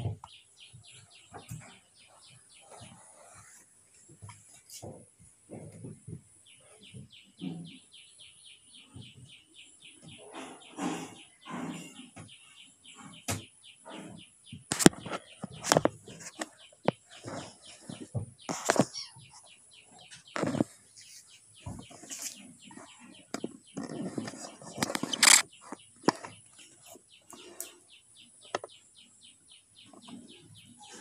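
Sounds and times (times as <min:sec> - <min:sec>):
bird chirping: 0:00.0 - 0:03.6, 0:04.2 - 0:31.0
sharp knocks and thumps: 0:04.1 - 0:07.8, 0:13.0 - 0:19.4, 0:20.0 - 0:20.8, 0:21.6 - 0:26.5.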